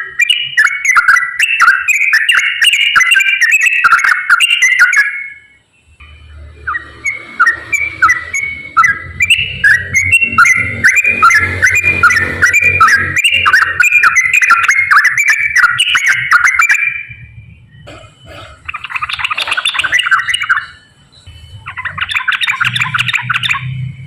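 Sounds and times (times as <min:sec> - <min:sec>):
bird singing bubbling whistles: 0:00.0 - 0:05.6, 0:06.6 - 0:17.9, 0:18.6 - 0:23.8
low steady hum: 0:05.2 - 0:22.9.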